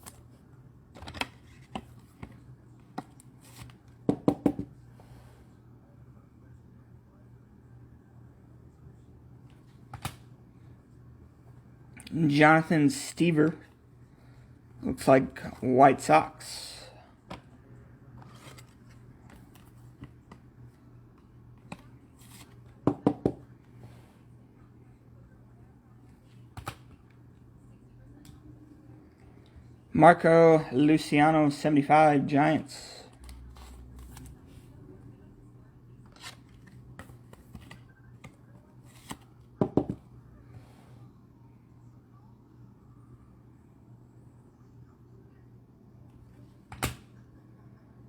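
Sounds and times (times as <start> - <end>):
cards clicking and rustling: 0.9 - 4.0, 18.2 - 20.4, 26.5 - 27.0, 36.1 - 39.4.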